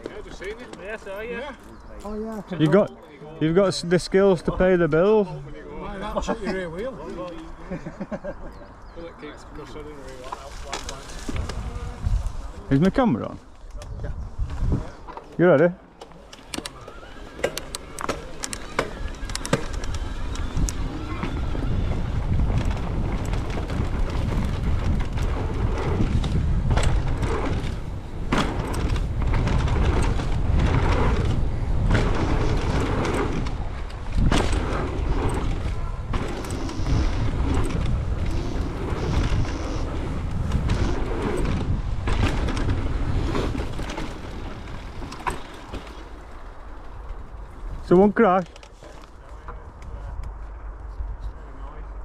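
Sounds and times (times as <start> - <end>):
wind blasting microphone: 7.6 - 15.1, 16.8 - 48.3, 49.4 - 52.0
bike knocks and rattles: 14.5 - 47.8
tyres rolling over dirt: 14.5 - 49.6.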